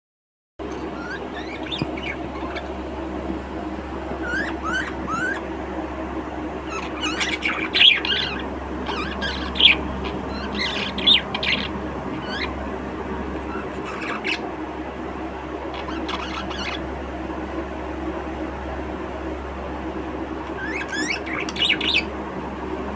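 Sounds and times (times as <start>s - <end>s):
steady low hum: 0.6s - 22.9s
budgerigars chirping and squawking: 0.7s - 3.0s, 4.2s - 5.5s, 6.6s - 12.6s, 13.4s - 14.5s, 15.7s - 16.8s, 20.4s - 22.1s.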